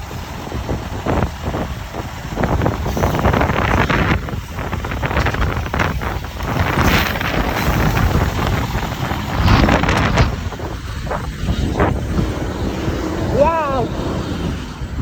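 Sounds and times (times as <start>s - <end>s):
vehicle running: 0.0s - 15.0s
wind buffeting microphone: 0.0s - 15.0s.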